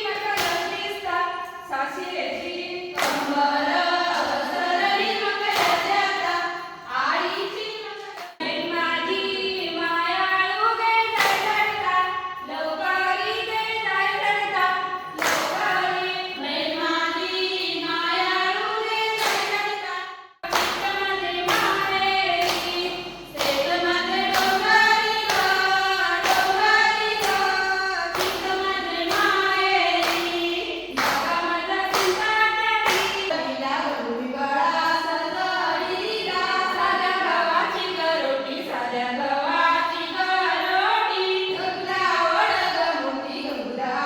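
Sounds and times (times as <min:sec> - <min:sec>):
women singing in chorus: 0:00.0 - 0:44.0
sharp percussive strikes: 0:20.4 - 0:33.3.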